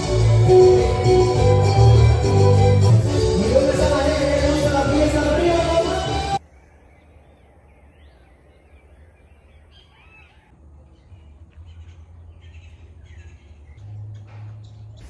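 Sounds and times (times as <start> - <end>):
low steady rumble: 0.0 - 6.4.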